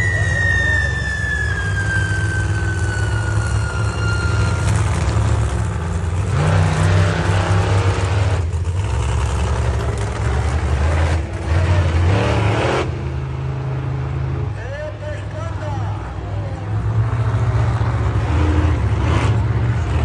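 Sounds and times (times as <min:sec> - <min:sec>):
high tone falling in pitch: 0:00.0 - 0:04.8
truck engine revving loudly: 0:00.0 - 0:14.6, 0:16.8 - 0:20.0.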